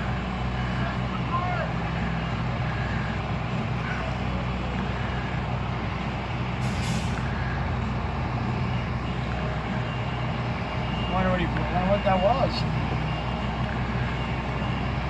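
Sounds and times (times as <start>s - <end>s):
truck engine idling: 0.0s - 15.0s
air brake hiss: 6.6s - 7.3s.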